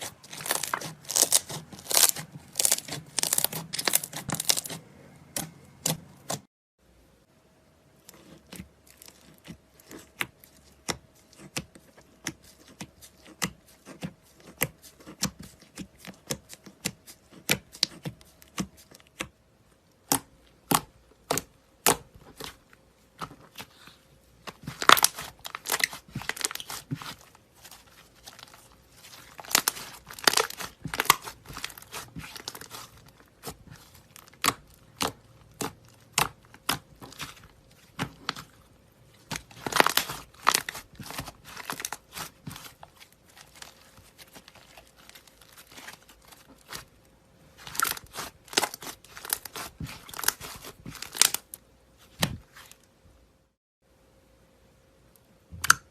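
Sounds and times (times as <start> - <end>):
slime crackling and popping: 0.0 - 4.8, 24.5 - 38.5, 39.2 - 47.0, 47.6 - 51.6.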